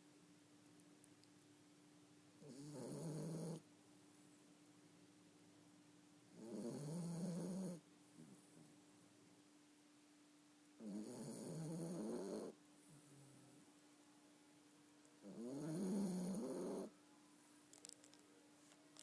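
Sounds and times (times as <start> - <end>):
faint steady hum: 0.0 - 19.0
dog snoring: 2.4 - 3.6, 6.3 - 8.7, 10.8 - 13.5, 15.2 - 16.9.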